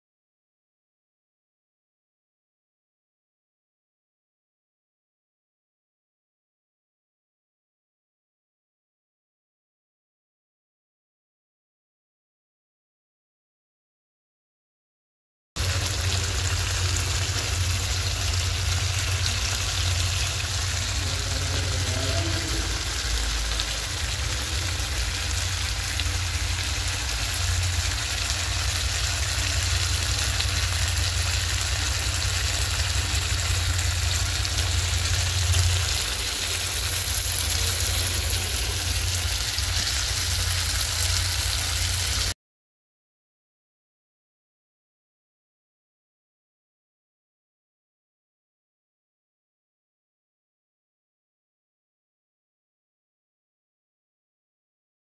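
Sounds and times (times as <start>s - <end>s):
low rumble: 15.6s - 42.3s
curry sizzling in a pan: 15.6s - 42.4s.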